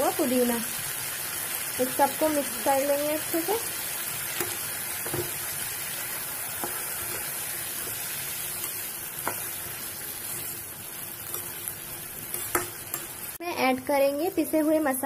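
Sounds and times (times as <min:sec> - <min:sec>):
food sizzling in hot oil: 0:00.0 - 0:15.0
metal spoon tapping pan: 0:04.4 - 0:05.4, 0:08.6 - 0:09.6, 0:12.2 - 0:13.2.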